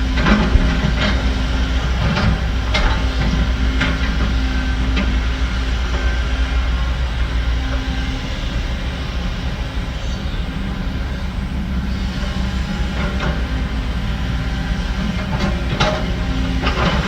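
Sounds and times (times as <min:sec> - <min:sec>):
diesel earthmoving machinery running: 0:00.0 - 0:17.0.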